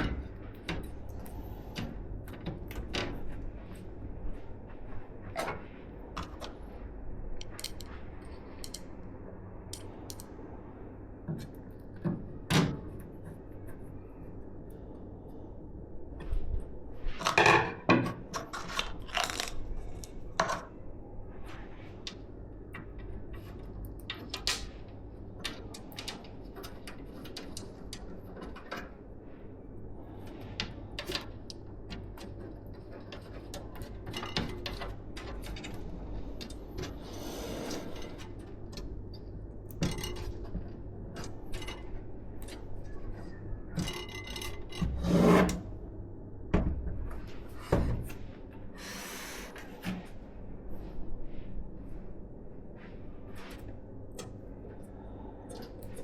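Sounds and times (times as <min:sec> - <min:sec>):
computer parts clicking and tapping: 0:22.8 - 0:29.0, 0:38.0 - 0:44.9
computer parts clattering: 0:37.9 - 0:45.0.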